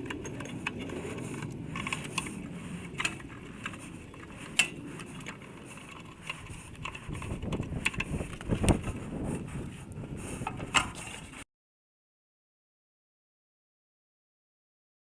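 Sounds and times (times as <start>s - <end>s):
sharp clicks and knocks: 0.0s - 9.0s, 10.4s - 11.4s
rustling and scraping of tools: 0.0s - 11.4s.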